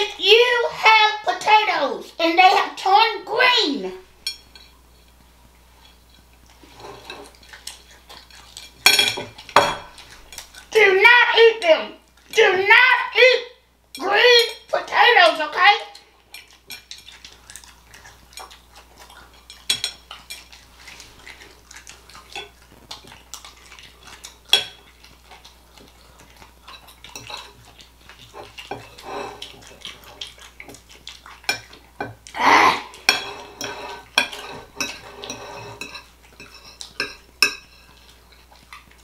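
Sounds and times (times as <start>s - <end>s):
cutlery clinking on a plate: 6.7s - 10.4s, 19.4s - 20.6s, 24.5s - 24.8s, 26.7s - 27.6s, 33.0s - 38.0s.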